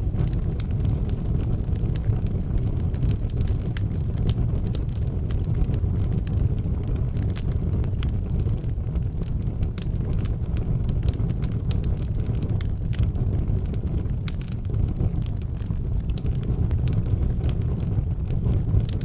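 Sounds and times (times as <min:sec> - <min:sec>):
fire crackling and popping: 0:00.0 - 0:19.0
wood fire rumbling: 0:00.0 - 0:19.0.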